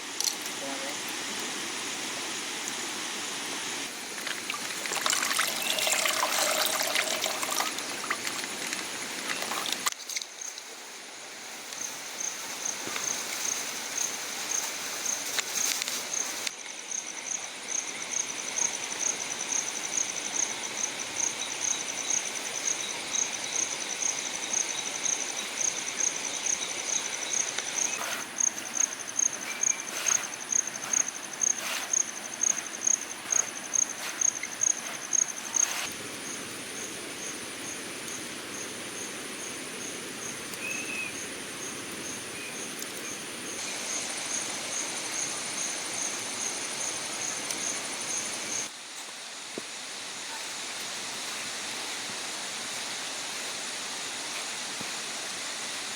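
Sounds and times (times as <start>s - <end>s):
background hiss: 0.0s - 55.9s
insect chirping: 0.5s - 55.9s
water pouring and trickling: 3.9s - 10.8s.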